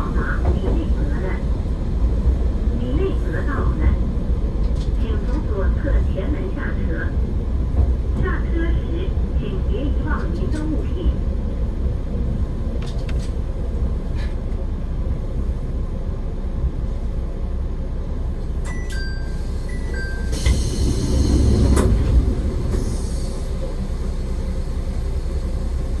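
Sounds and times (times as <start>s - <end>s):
diesel railcar rumble: 0.0s - 26.0s.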